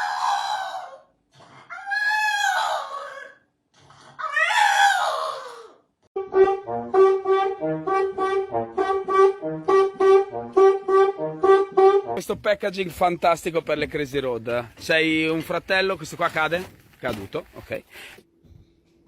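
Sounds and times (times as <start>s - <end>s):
animal wavering cries: 0.0s - 1.1s, 1.7s - 3.5s, 4.1s - 5.8s
bouncy brass music: 6.2s - 12.6s.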